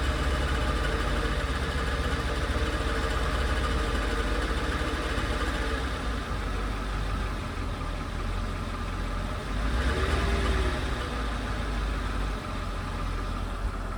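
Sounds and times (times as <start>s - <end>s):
car engine idling with rattle: 0.0s - 13.9s.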